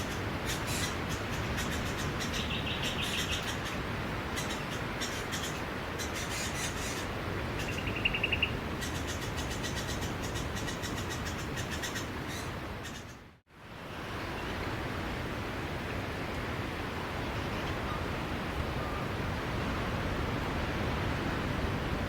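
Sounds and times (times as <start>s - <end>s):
birds chirping: 0.0s - 13.2s.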